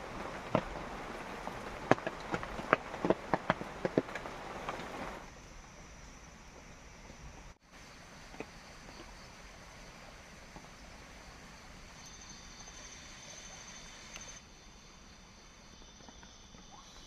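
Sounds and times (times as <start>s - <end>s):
insects chirring: 0.0s - 17.0s
faint clicks: 14.0s - 14.4s.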